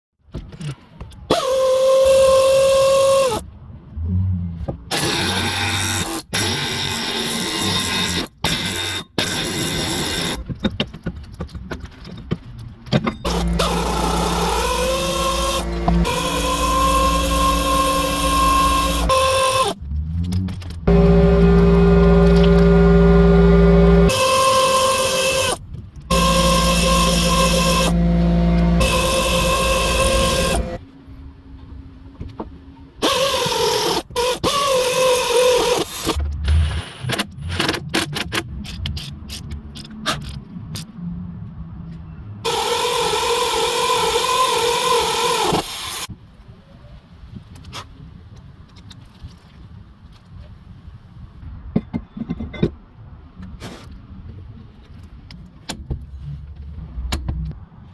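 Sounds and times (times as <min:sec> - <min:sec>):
power tool motor whining: 0:13.2 - 0:19.8, 0:20.9 - 0:30.8, 0:42.5 - 0:46.1.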